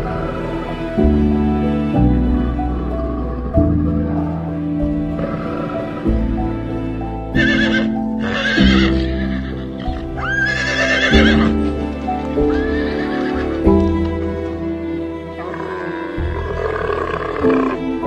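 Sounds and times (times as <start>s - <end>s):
background music: 0.0s - 18.0s
horse neighing: 7.3s - 14.1s, 15.4s - 17.9s.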